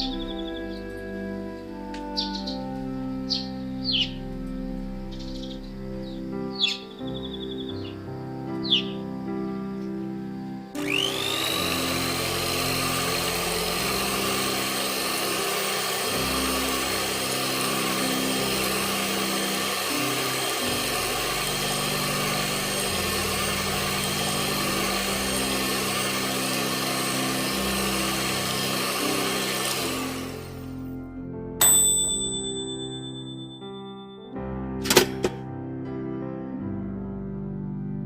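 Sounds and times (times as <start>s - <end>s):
background music with low notes: 0.0s - 38.0s
small electric motor whining: 10.8s - 30.8s.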